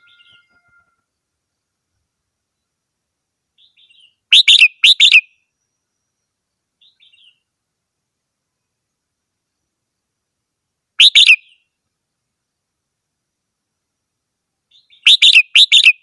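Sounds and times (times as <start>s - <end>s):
bird singing: 0.0s - 1.8s, 3.6s - 7.5s, 11.0s - 11.8s, 14.7s - 16.0s.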